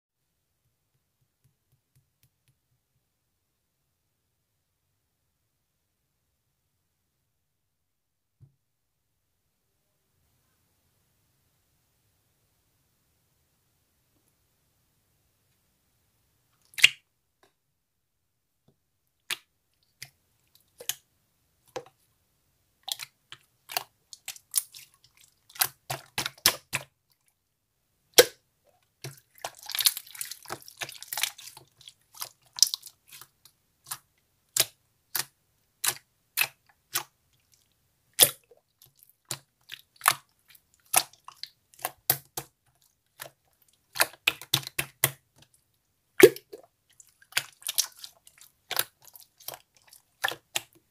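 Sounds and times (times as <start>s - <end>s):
slime clicking and popping: 43.9s - 45.2s.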